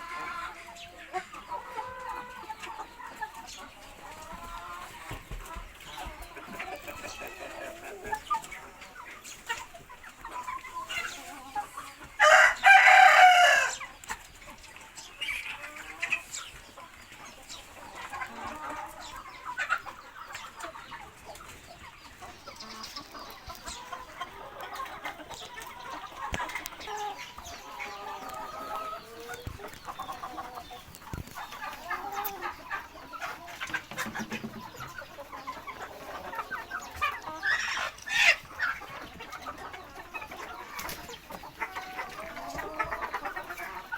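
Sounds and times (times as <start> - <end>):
chickens clucking: 0.0 - 43.9
rooster crowing: 12.2 - 13.8.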